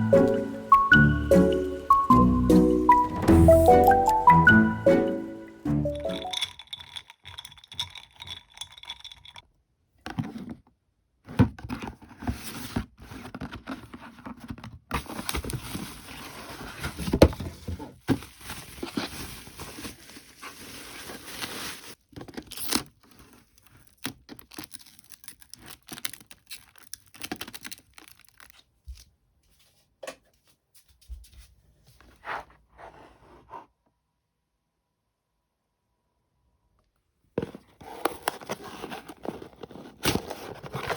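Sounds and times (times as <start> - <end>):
rustling and scraping: 11.5 - 24.9, 29.4 - 33.8, 37.4 - 40.9.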